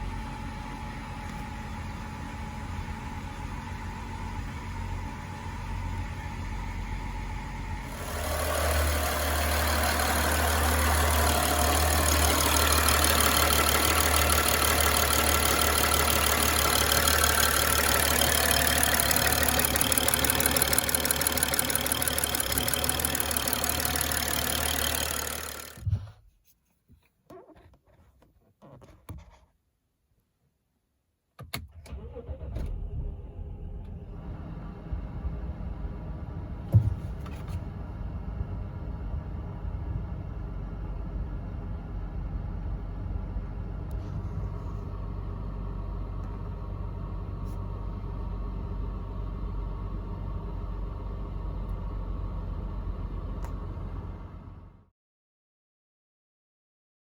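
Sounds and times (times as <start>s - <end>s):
car engine running: 7.7s - 26.0s.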